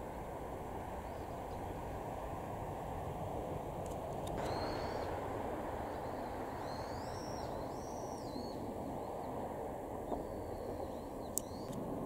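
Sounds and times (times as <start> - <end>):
low outdoor rumble: 0.0 - 12.0
small birds chirping: 1.0 - 1.8, 4.2 - 11.8
faint clicks: 11.3 - 11.8.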